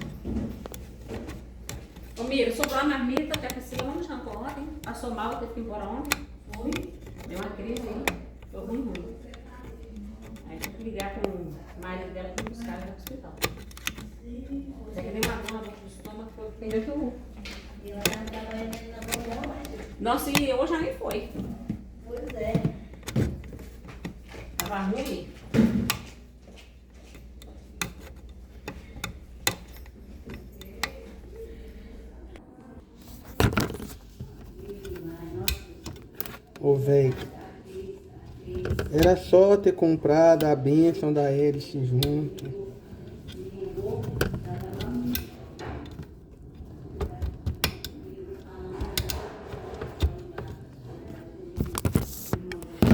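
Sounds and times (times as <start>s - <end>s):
small parts and tools clicking: 0.0s - 32.4s, 33.0s - 52.9s.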